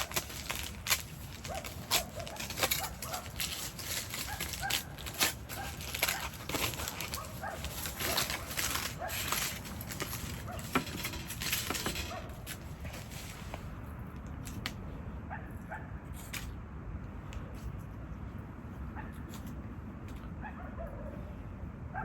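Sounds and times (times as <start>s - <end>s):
rustling: 0.0s - 14.7s.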